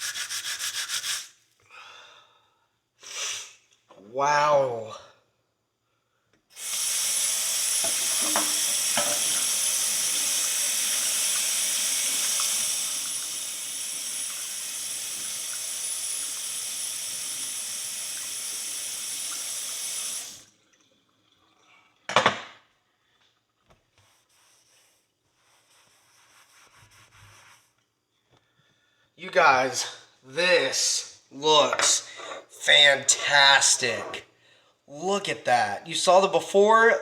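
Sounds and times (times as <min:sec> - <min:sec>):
water running from tap: 0:06.6 - 0:20.5.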